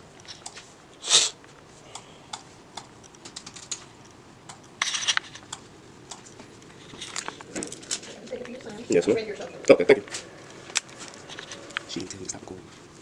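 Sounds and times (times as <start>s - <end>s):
computer keyboard typing: 1.9s - 6.4s.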